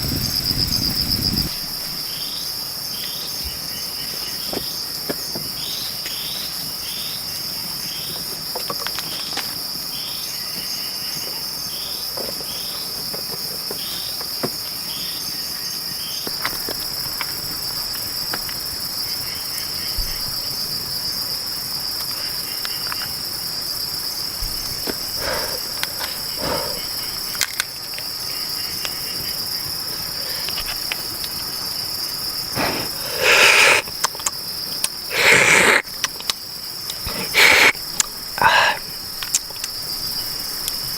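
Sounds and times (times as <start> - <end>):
insect chirping: 0.0 - 40.9
insects shrilling: 16.0 - 40.9.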